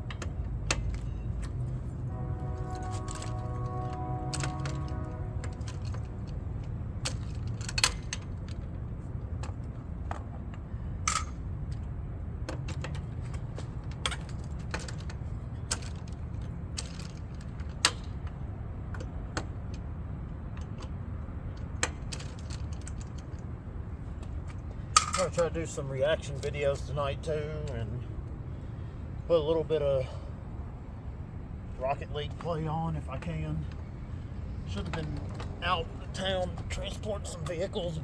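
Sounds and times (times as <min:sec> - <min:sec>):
steady low hum: 0:00.0 - 0:12.5.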